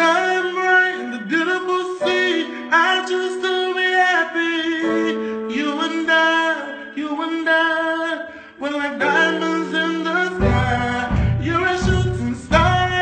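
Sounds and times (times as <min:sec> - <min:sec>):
person singing long notes: 0:00.0 - 0:13.0
steady held accompaniment: 0:09.2 - 0:13.0.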